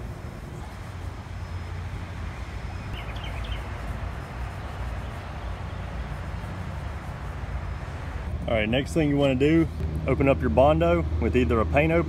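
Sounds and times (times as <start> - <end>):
low outdoor rumble: 0.0 - 12.0
bird chirping: 0.5 - 6.9.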